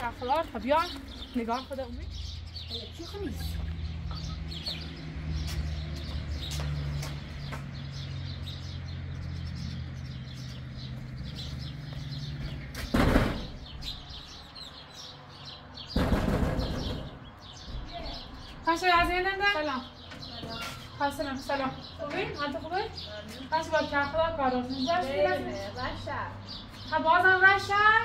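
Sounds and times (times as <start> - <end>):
small birds chirping: 0.0 - 28.0
loud bursts of noise: 15.9 - 17.2.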